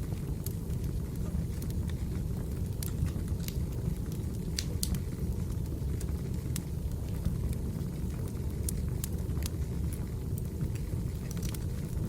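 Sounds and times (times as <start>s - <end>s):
fire rumbling: 0.0s - 12.0s
firewood crackling pops: 2.7s - 6.7s, 10.6s - 12.0s.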